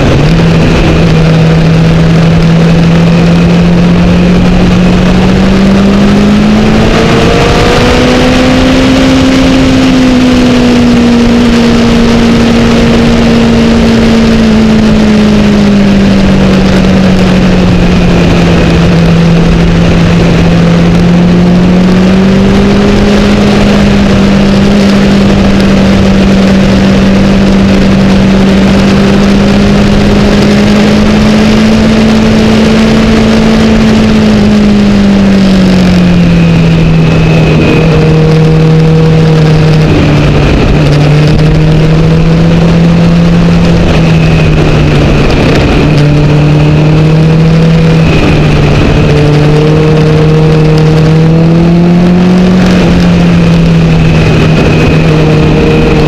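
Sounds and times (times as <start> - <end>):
motorcycle engine at high revs: 0.0 - 56.0
wind rush: 0.0 - 56.0.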